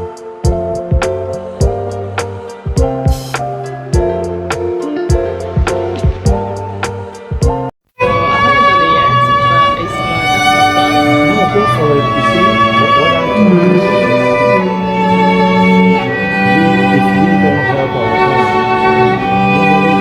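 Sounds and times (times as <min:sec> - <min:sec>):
cello-like bass line: 0:08.0 - 0:20.0
violin slow melody: 0:08.0 - 0:20.0.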